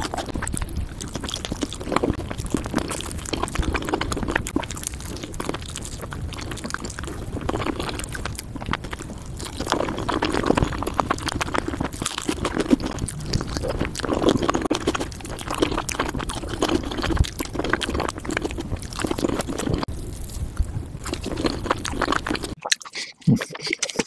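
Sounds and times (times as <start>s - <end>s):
chewing: 0.0s - 24.0s
chicken meat tearing and squishing: 0.0s - 24.0s.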